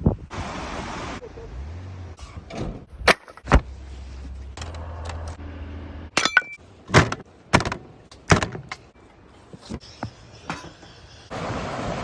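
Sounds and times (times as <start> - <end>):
sharp knocks and clinks: 6.2 - 7.2.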